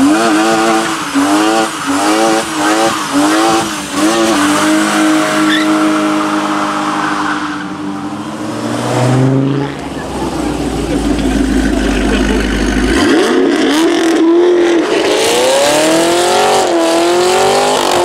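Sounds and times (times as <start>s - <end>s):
car engine revving: 0.0s - 18.0s
tyres squealing: 0.6s - 7.6s.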